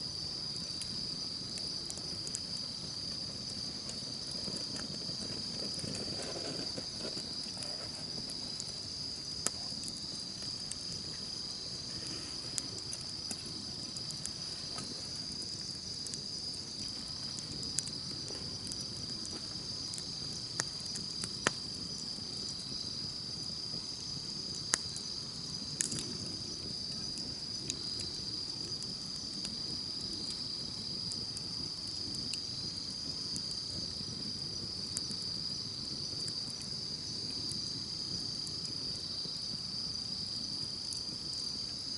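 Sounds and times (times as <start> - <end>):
campfire crackling and popping: 0.0 - 41.9
insects chirring: 0.0 - 41.9.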